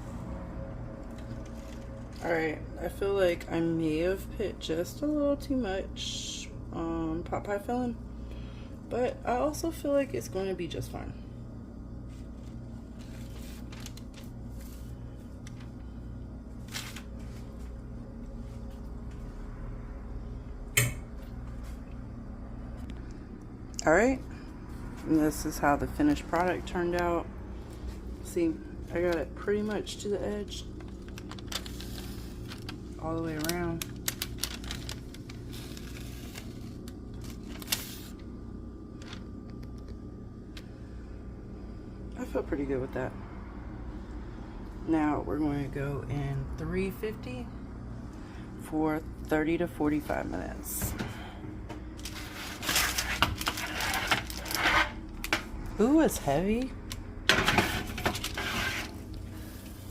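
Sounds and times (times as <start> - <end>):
low hum: 0.0 - 59.9.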